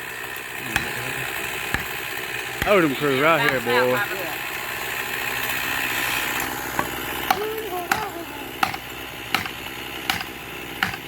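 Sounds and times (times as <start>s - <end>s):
hammer striking wedges: 0.6s - 4.0s, 6.8s - 11.0s.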